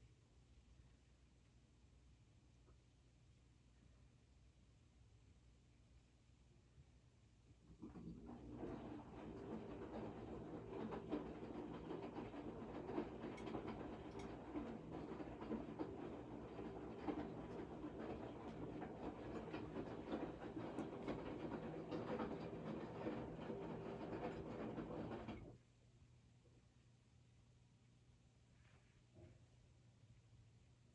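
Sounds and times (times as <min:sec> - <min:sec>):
washing machine humming: 0:07.6 - 0:25.6
washing machine knocks and rattles: 0:07.7 - 0:25.6.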